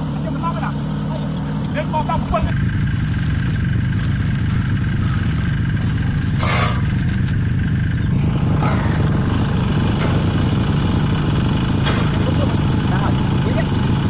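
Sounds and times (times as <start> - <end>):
engine running: 0.0 - 14.0
short hissing rush: 2.9 - 7.4.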